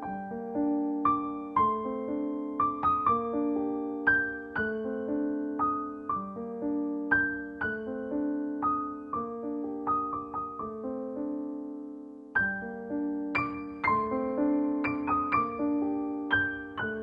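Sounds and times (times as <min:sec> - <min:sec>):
slow gentle piano music: 0:00.0 - 0:17.0.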